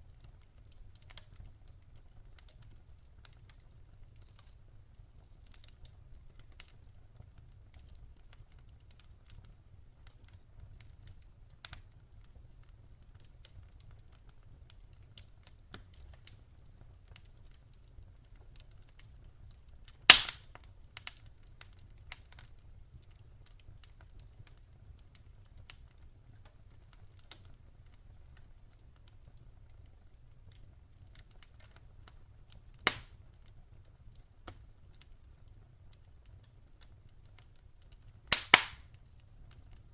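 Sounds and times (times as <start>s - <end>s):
campfire crackling: 0.0s - 39.9s
burning wood popping: 19.8s - 22.5s, 30.5s - 33.6s, 37.3s - 39.8s.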